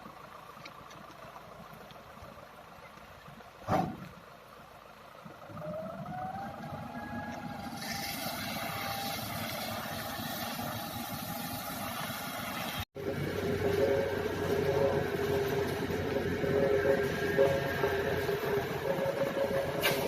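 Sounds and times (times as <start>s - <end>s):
engine whining: 4.4s - 20.0s.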